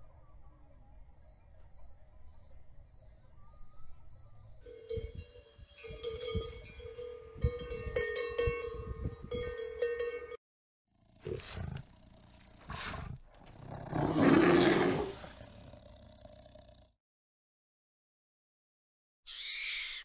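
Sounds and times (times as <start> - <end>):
cowbells ringing: 4.7 - 10.4
bear growling: 11.0 - 17.0.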